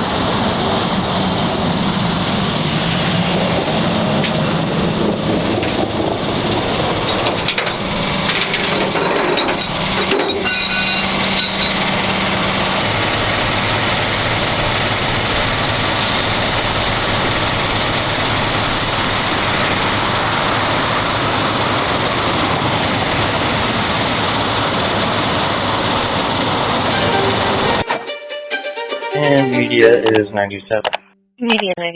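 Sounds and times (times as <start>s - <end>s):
vehicle engines droning: 0.0s - 27.8s
rattling and clattering: 6.5s - 11.9s.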